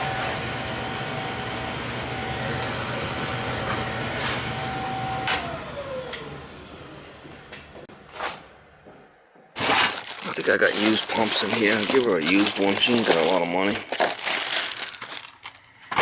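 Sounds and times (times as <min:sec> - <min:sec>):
oil burner high-pitched whine: 0:00.0 - 0:07.2.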